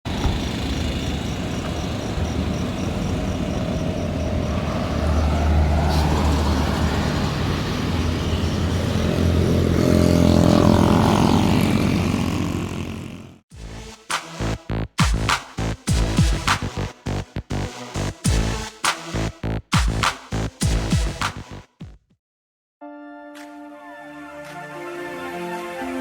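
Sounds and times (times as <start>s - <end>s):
bus diesel engine running hard: 0.0s - 13.4s.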